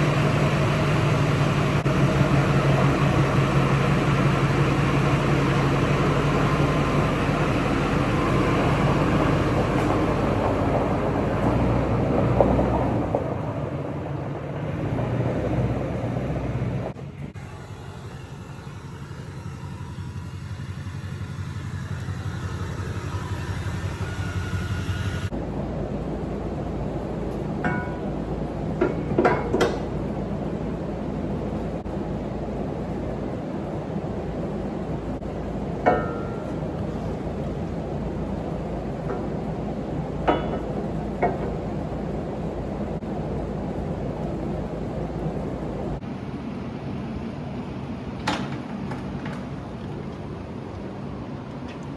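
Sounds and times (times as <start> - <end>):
diesel engine rumbling: 0.0 - 51.9.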